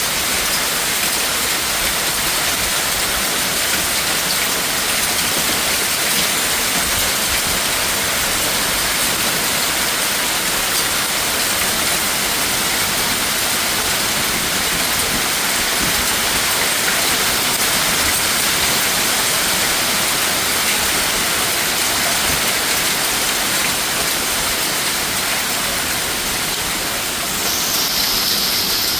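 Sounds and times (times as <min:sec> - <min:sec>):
heavy rain pouring: 0:00.0 - 0:28.9.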